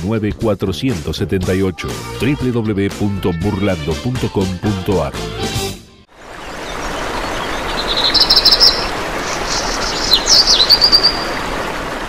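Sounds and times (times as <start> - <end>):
birds chirping and trilling: 6.3 - 11.7.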